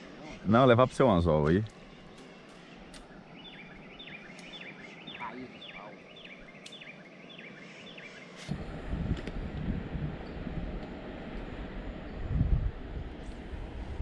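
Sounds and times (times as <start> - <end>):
bird calling: 0.0 - 8.5
low rumbling noise: 7.2 - 14.0.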